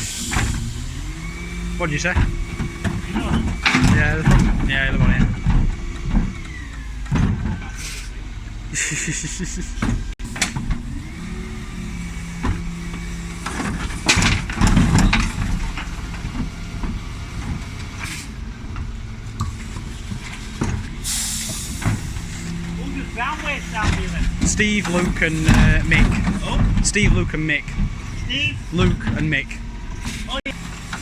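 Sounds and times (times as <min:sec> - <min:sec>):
bin lorry whine: 0:00.0 - 0:31.0
air hisses: 0:21.0 - 0:22.1.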